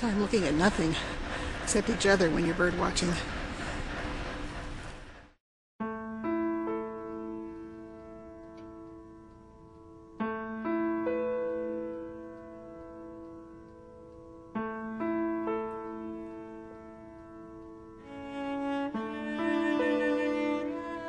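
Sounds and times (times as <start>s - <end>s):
slow soft piano music: 5.8s - 21.0s.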